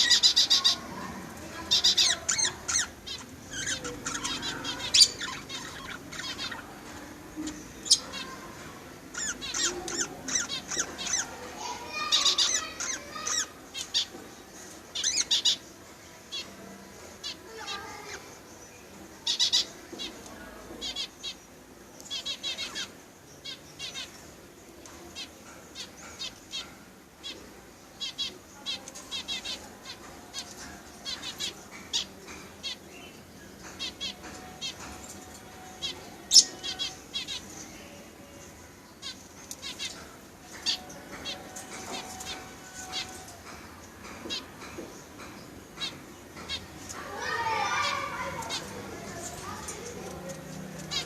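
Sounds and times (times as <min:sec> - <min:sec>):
budgerigars chirping: 0:00.0 - 0:14.2, 0:14.9 - 0:15.6, 0:19.2 - 0:21.4, 0:22.1 - 0:24.2, 0:50.8 - 0:51.0.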